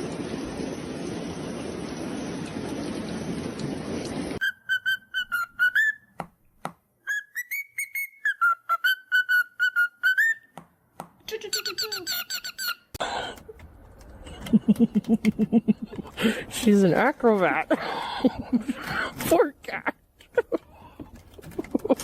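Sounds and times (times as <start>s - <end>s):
person whistling high notes: 4.4s - 6.1s, 7.1s - 10.5s.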